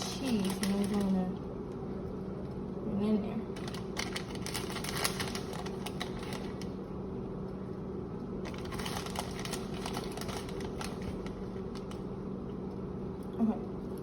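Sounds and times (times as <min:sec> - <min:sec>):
bag crackling and clicking: 0:00.0 - 0:01.2, 0:03.6 - 0:06.7, 0:08.4 - 0:12.0
steady low hum: 0:00.0 - 0:14.0.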